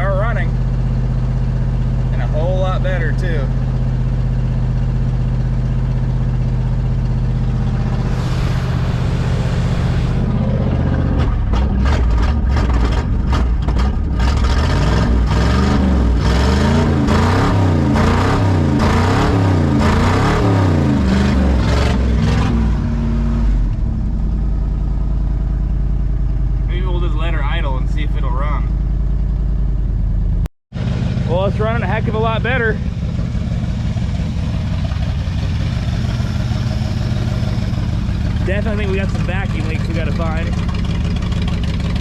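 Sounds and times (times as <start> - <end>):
truck engine idling and revving: 0.0 - 42.0.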